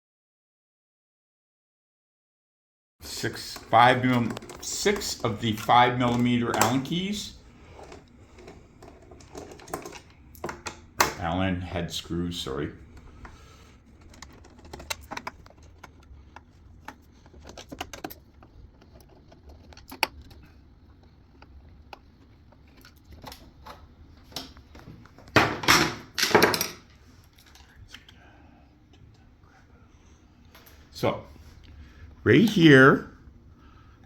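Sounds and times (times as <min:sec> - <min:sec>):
parts scraping: 0:03.0 - 0:11.0, 0:12.8 - 0:23.8.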